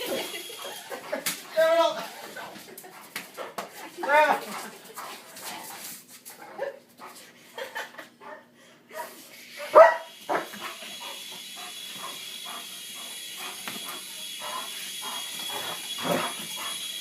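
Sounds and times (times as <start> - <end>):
toy helicopter motor whine: 0.0 - 1.0, 9.4 - 17.0
dog barking: 9.0 - 10.5
dog yelping and whining: 14.5 - 17.0.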